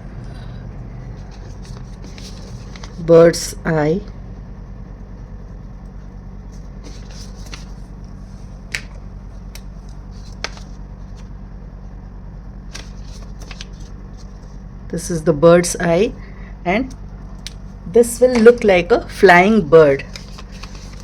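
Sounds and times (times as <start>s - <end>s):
steady low hum: 0.0s - 21.0s
paper rustling: 1.1s - 3.1s, 6.5s - 11.3s, 12.7s - 14.6s, 19.4s - 21.0s.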